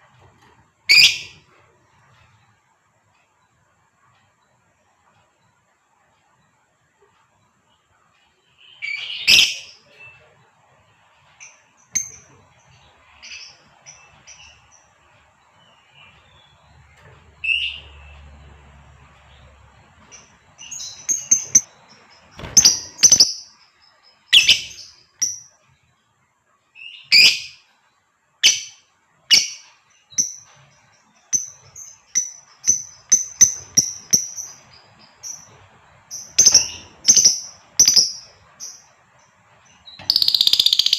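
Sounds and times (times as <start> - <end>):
lovebird high chirps: 0.9 - 1.5, 8.6 - 9.9, 20.1 - 25.5, 26.8 - 27.6, 28.4 - 30.5, 31.2 - 35.5, 36.1 - 38.9, 39.8 - 40.9.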